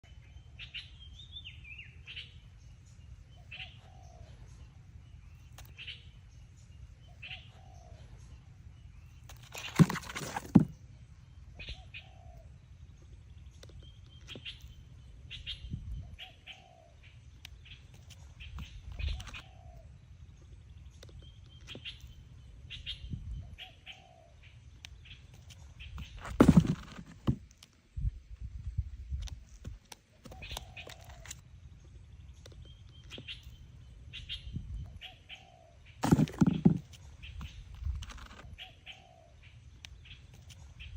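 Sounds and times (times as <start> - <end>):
wings fluttering: 9.2 - 10.8, 17.9 - 19.4, 25.3 - 27.7, 29.4 - 31.4, 36.0 - 38.5
steady low hum: 10.6 - 40.9
bird chirps: 11.4 - 27.0, 30.3 - 40.9
low rumbling handling noise: 25.8 - 33.6, 36.0 - 38.6.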